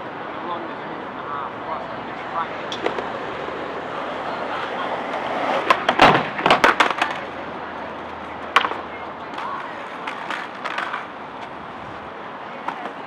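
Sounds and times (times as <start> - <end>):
skateboard wheels rolling: 0.0 - 13.0
skateboard clacks and knocks: 2.7 - 11.6, 12.4 - 13.0.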